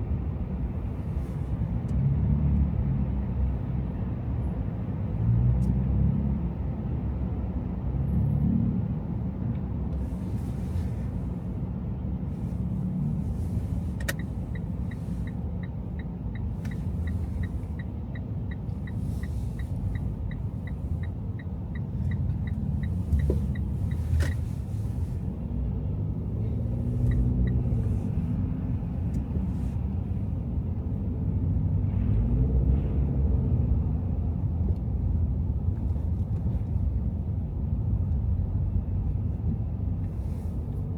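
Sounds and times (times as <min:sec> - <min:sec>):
car engine and tyres rumbling: 0:00.0 - 0:40.9
turn signal ticking: 0:12.3 - 0:31.4.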